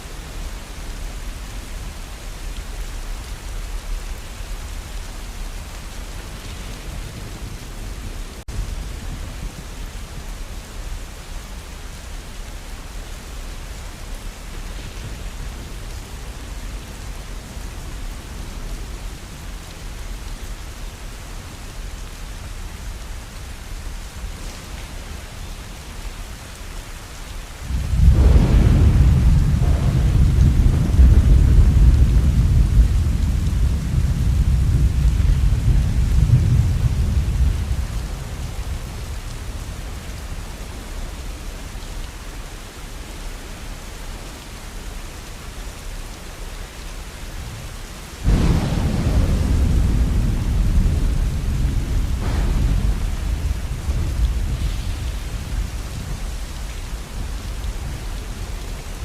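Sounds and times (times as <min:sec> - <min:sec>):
steady rain falling: 0:00.0 - 0:59.0
thunder rolling: 0:27.6 - 0:40.0, 0:48.2 - 0:58.4.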